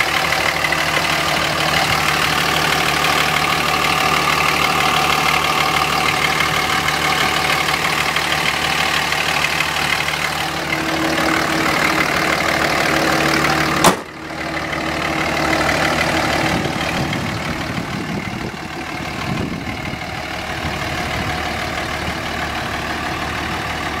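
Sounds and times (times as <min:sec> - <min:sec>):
diesel engine idling: 0:00.0 - 0:24.0
sharp engine knock: 0:13.8 - 0:14.2.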